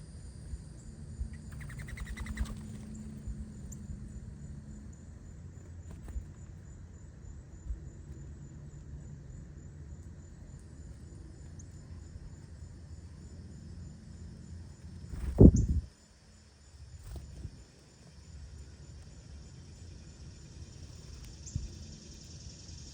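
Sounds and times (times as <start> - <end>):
insects buzzing: 0.0 - 22.9
bird trill: 1.3 - 3.0.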